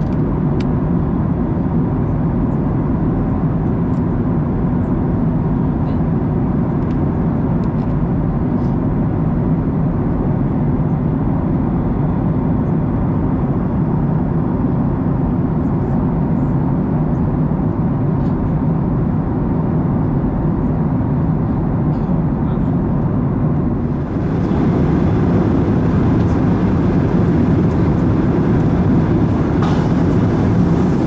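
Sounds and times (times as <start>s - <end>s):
airplane cabin engine rush: 23.7s - 31.0s.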